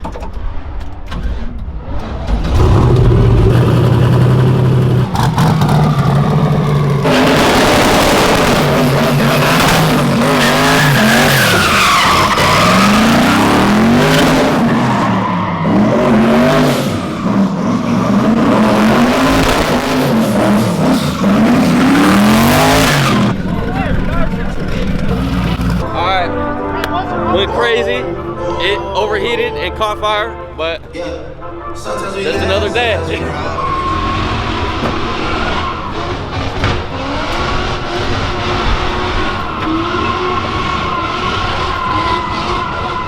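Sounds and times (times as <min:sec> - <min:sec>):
car engine revving: 0:00.6 - 0:26.0, 0:32.9 - 0:43.0
tyres squealing: 0:02.3 - 0:19.2, 0:32.2 - 0:43.0.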